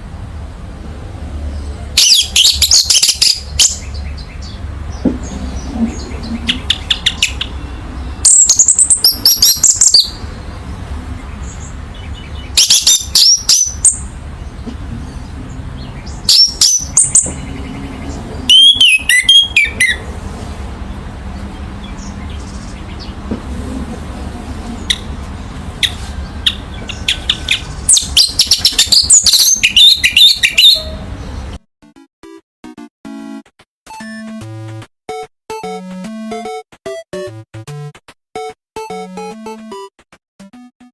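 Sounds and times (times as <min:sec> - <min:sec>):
thrush singing whistled phrases: 0:18.5 - 0:20.0, 0:26.5 - 0:30.9.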